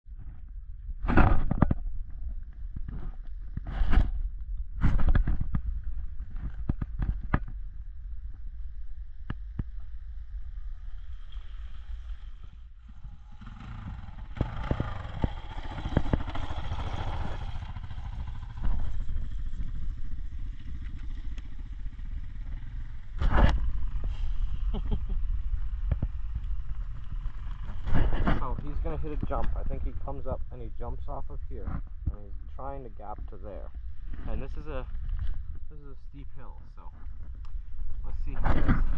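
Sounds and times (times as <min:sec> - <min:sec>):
steady low rumble: 0:00.1 - 0:38.9
dirt bike engine running: 0:02.2 - 0:36.1.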